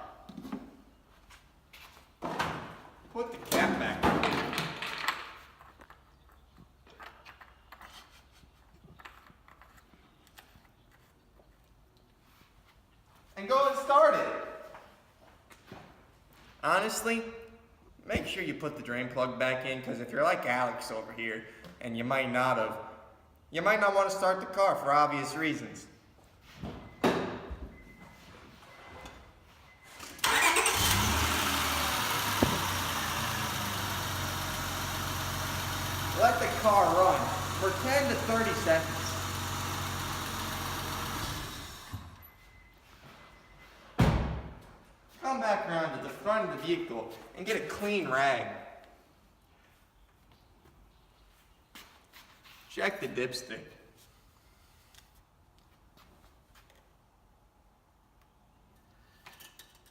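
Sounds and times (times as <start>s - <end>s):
car engine starting and idling: 30.0s - 42.3s.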